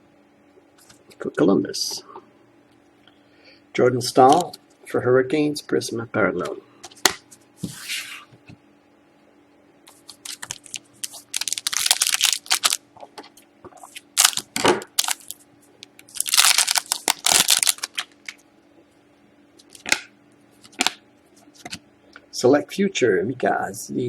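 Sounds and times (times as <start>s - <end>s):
cards and plastic rustling: 9.9s - 12.8s, 13.8s - 18.4s.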